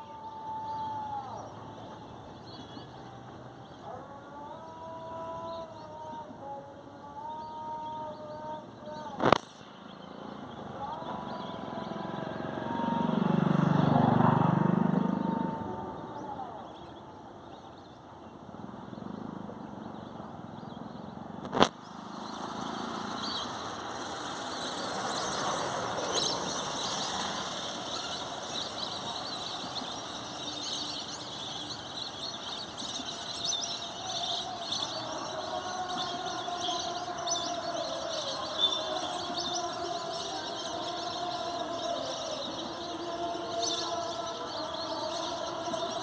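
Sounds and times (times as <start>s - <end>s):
background traffic: 0.0s - 46.0s
vehicle passing by: 9.7s - 16.7s, 21.2s - 46.0s
high bird chirps: 21.6s - 46.0s.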